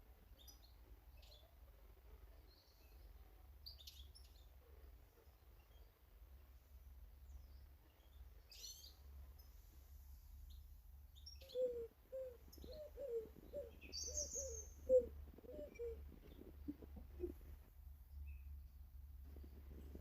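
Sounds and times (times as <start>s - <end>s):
birds chirping high: 11.2s - 17.5s.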